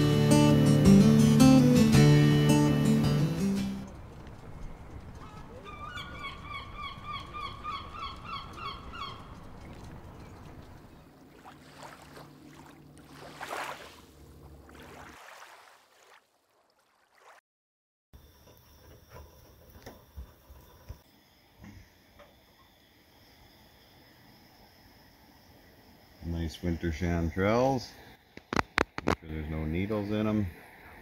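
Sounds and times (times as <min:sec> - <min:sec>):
low outdoor noise: 0:02.5 - 0:13.4, 0:18.2 - 0:31.0
bird calling harsh repeated notes: 0:05.2 - 0:09.4.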